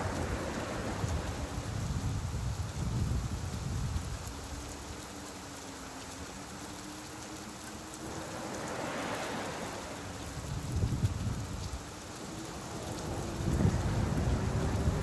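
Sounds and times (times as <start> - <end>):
wave washing in: 0.0 - 3.2, 7.7 - 15.0
steady rain: 0.0 - 15.0
low rumble of thunder: 9.2 - 15.0.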